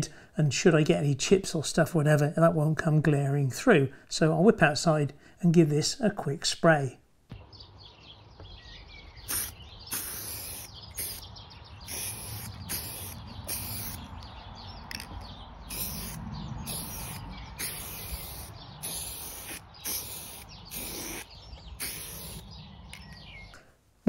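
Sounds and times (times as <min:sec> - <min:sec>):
birds chirping and singing: 0:07.3 - 0:23.6.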